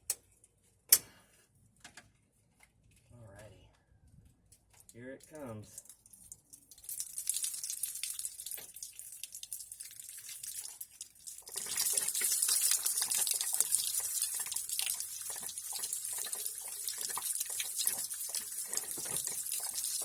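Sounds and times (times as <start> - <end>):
liquid gushing and splashing: 6.1 - 20.0.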